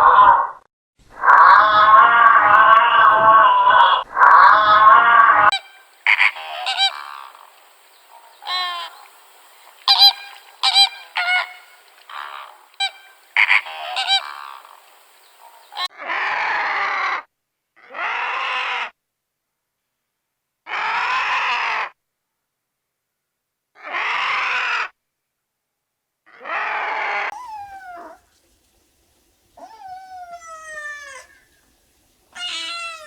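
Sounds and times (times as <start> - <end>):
longer bird calls: 5.5 - 15.9, 27.3 - 33.0
short sharp bird calls: 5.5 - 15.9.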